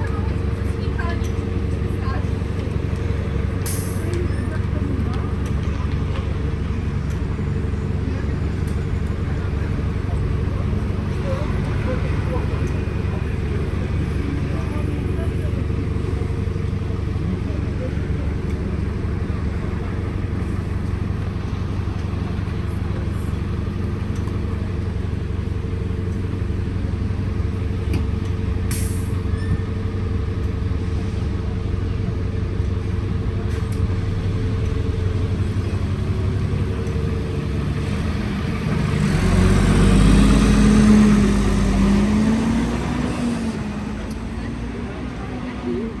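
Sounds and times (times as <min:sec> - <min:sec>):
bus engine running: 0:00.0 - 0:46.0.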